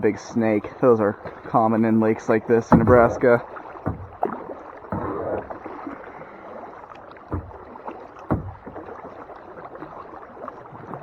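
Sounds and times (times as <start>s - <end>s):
paddle splashing water: 0.0s - 11.0s
sharp splashes or knocks: 1.2s - 10.0s.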